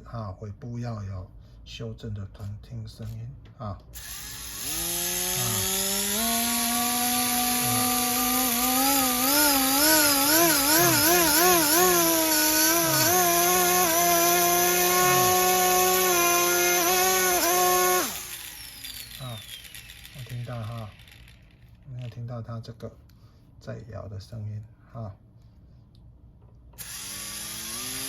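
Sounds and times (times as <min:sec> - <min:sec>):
model helicopter rotor whine: 0:04.0 - 0:21.8, 0:26.8 - 0:28.0.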